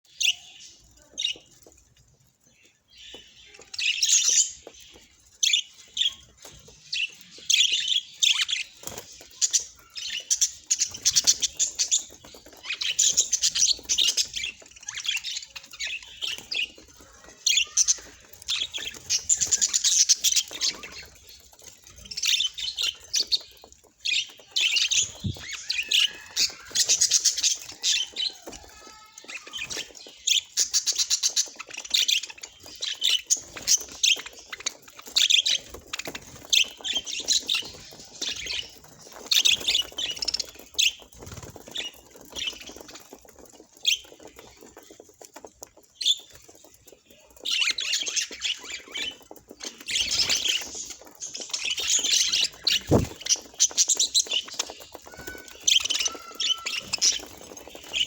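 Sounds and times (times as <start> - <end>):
budgerigar chirping and squawking: 52.0 - 53.2, 55.0 - 58.0.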